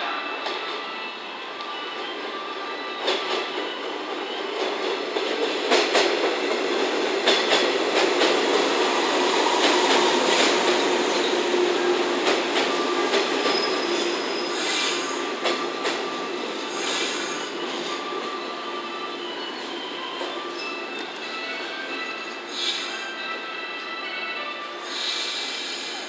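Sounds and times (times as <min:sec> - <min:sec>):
train wheels clicking over rail joints: 0:04.6 - 0:09.0.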